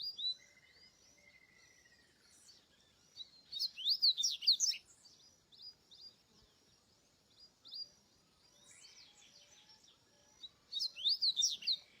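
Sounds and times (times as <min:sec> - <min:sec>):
bird singing whistled notes: 0:00.0 - 0:06.2, 0:10.4 - 0:12.0.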